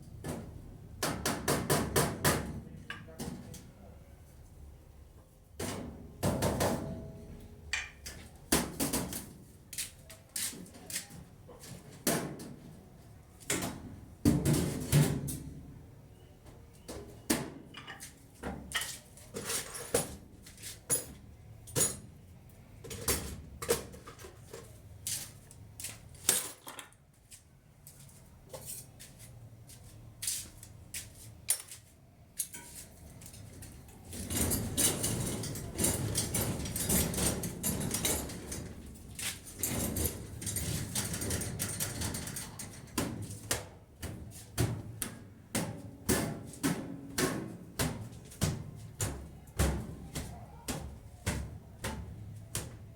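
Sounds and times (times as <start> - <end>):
metal parts clinking and clanking: 26.3 - 27.0, 34.1 - 42.9.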